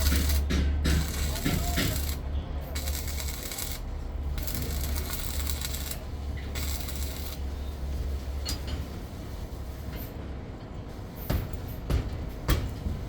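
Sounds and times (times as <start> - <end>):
machinery humming: 0.0 - 8.2.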